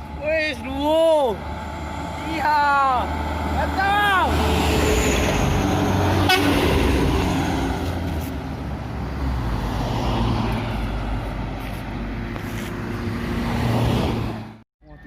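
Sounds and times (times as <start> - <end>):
short horn toot: 6.2 - 6.7.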